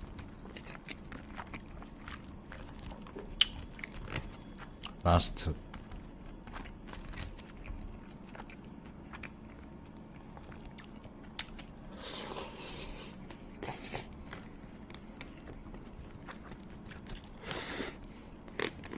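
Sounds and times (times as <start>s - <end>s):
person chewing food: 0.0s - 5.0s, 5.6s - 18.9s
crisp crunching: 5.6s - 9.4s.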